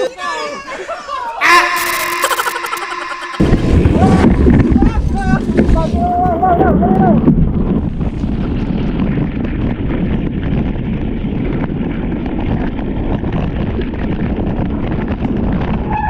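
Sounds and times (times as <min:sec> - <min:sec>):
wind buffeting microphone: 0:03.4 - 0:16.0.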